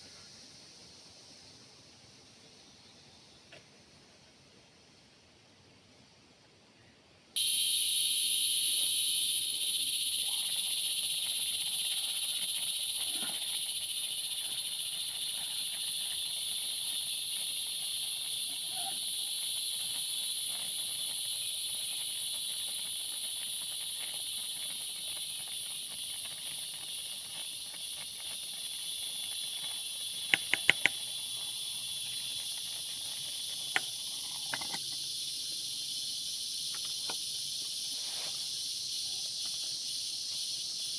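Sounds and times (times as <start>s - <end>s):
insect chorus: 0.0s - 40.9s
sharp clicks: 30.3s - 31.0s.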